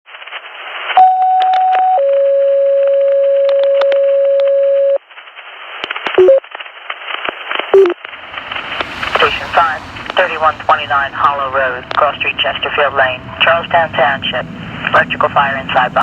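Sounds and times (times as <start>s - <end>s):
short beeps: 6.2s - 6.4s, 7.8s - 8.0s
radio hiss: 9.0s - 16.0s
two-tone radio page: 9.2s - 16.0s.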